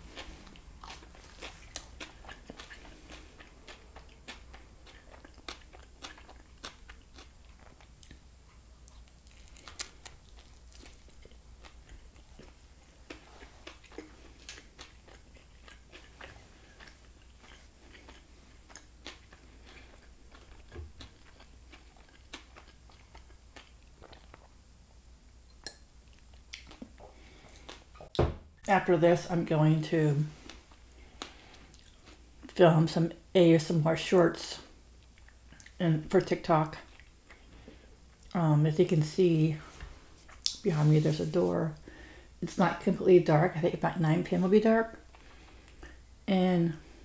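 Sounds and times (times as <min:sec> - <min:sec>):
chewing with wet mouth clicks: 0:00.1 - 0:24.6, 0:25.5 - 0:28.2, 0:30.4 - 0:32.2, 0:35.0 - 0:35.8, 0:44.9 - 0:46.0.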